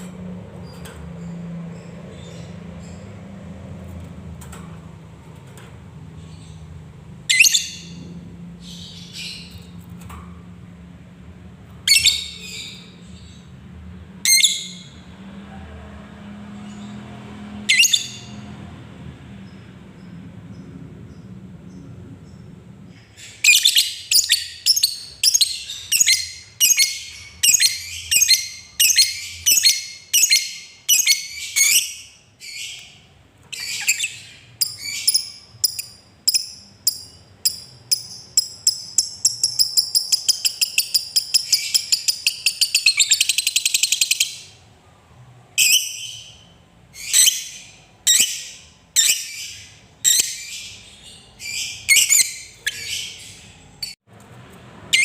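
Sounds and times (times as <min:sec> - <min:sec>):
lovebird chirping and trilling: 0:00.6 - 0:03.2, 0:06.2 - 0:08.0, 0:08.6 - 0:09.8, 0:11.8 - 0:13.5, 0:14.2 - 0:15.0, 0:17.7 - 0:18.4, 0:23.2 - 0:44.6, 0:45.6 - 0:54.0.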